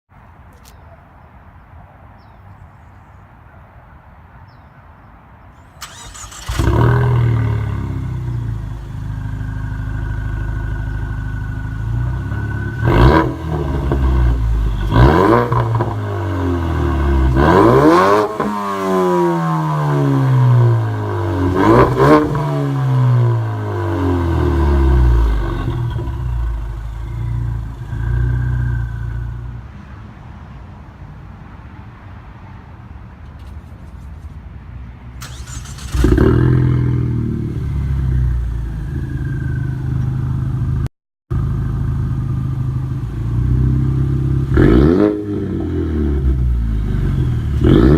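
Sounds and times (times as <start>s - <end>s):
car engine revving: 5.8s - 29.4s, 35.2s - 40.8s, 41.4s - 47.9s
car engine starting: 5.8s - 29.4s, 35.2s - 47.9s.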